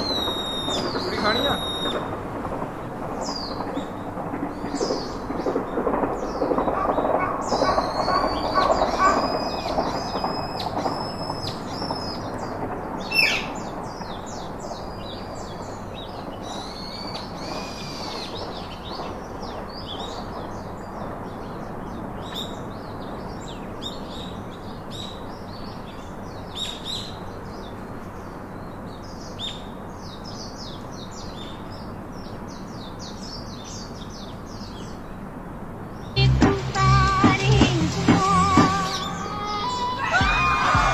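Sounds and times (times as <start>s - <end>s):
birds chirping: 0.0s - 35.2s, 36.0s - 40.9s
steady hiss: 35.1s - 40.9s.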